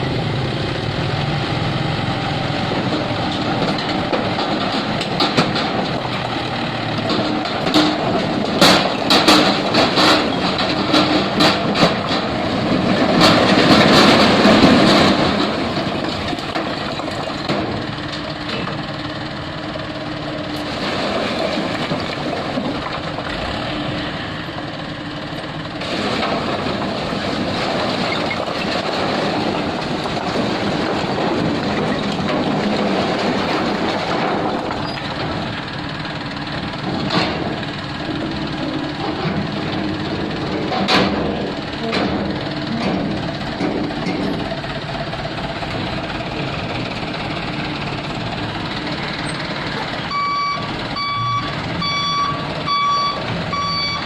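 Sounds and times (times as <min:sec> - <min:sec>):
truck engine running: 0:00.0 - 0:54.0
loud rush of stones: 0:20.6 - 0:23.8, 0:25.8 - 0:35.7
stones rattling and clattering: 0:25.9 - 0:35.9.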